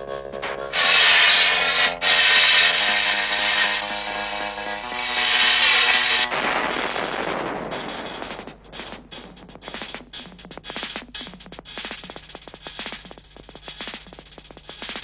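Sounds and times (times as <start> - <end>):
noisy swish: 0.5 - 9.4
dry percussive clicks and taps: 8.3 - 15.0.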